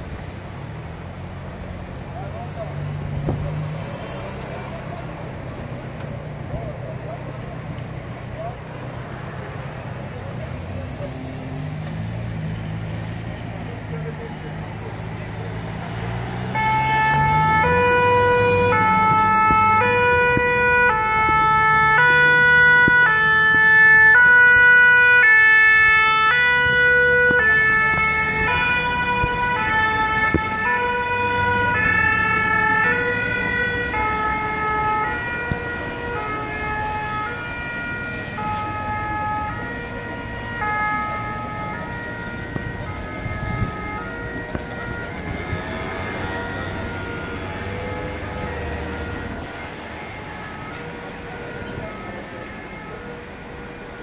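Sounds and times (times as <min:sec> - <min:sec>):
low traffic rumble: 0:00.0 - 0:54.0
two-tone emergency siren: 0:12.2 - 0:54.0.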